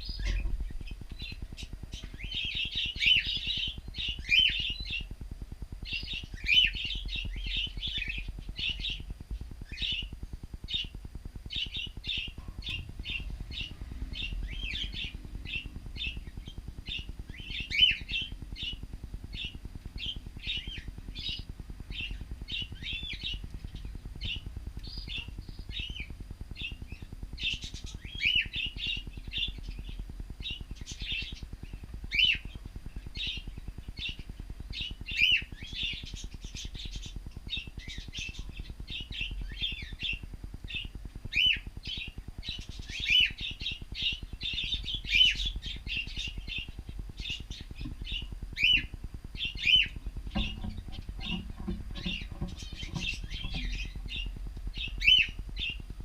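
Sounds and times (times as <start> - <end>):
steady low hum: 0.0 - 56.0
cockatiels chirping: 32.1 - 55.8.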